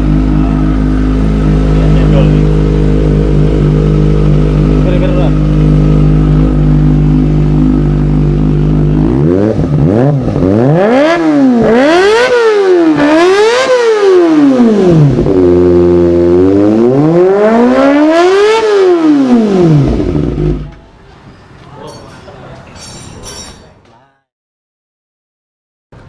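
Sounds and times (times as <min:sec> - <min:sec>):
motorcycle engine idling and revving: 0:00.0 - 0:20.8.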